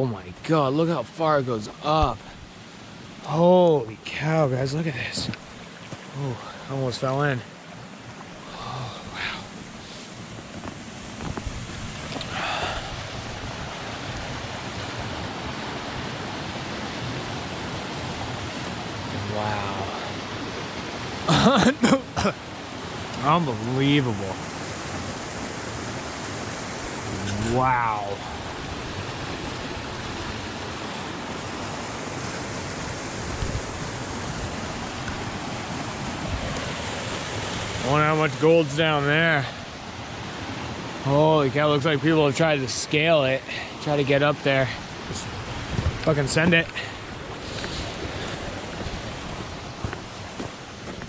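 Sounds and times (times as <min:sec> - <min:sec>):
waterfall rushing: 0:00.1 - 0:51.0
water pouring down waterfall: 0:19.1 - 0:20.1, 0:26.3 - 0:28.3.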